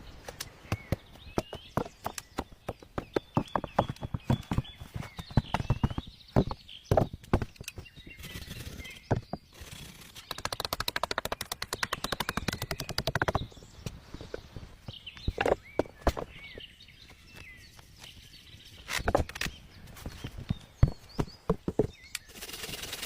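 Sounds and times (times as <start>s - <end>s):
small birds chirping: 0.0s - 23.0s
sharp knocks and taps: 0.4s - 7.9s, 10.3s - 13.5s, 20.8s - 22.0s.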